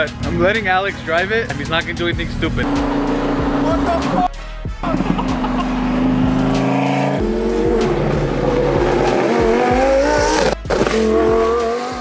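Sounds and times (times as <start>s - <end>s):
engine rumbling: 0.0s - 12.0s
tyres squealing: 2.6s - 12.0s.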